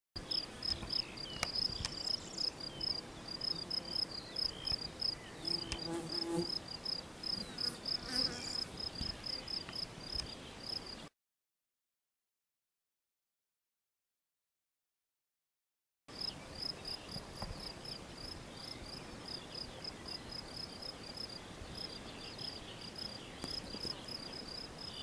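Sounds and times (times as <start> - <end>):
cricket chirping: 0.3 - 11.0, 16.2 - 25.0.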